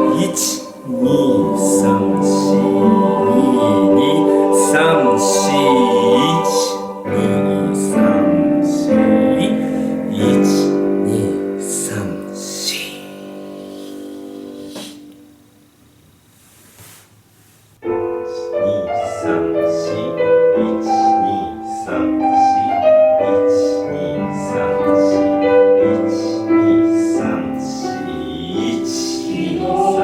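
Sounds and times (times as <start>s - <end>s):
choir singing: 0.0s - 14.0s, 18.3s - 30.0s
piano accompaniment: 0.0s - 15.8s, 17.8s - 30.0s.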